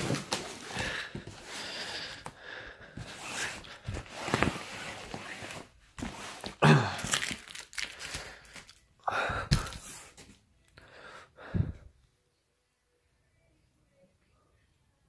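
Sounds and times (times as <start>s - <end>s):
packaging tearing and crinkling: 7.0s - 8.8s.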